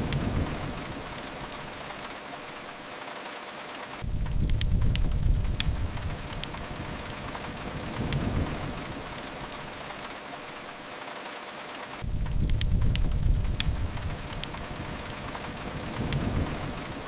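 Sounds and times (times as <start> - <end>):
sharp crackles: 0.0 - 17.0
steady rain hissing: 0.0 - 17.0
low rumble: 4.0 - 9.0, 12.0 - 17.0.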